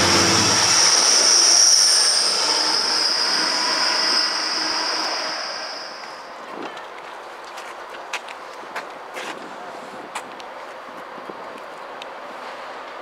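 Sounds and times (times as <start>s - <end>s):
high-pitched wheel squeal: 0.0s - 6.3s
rail rumble: 0.0s - 8.8s.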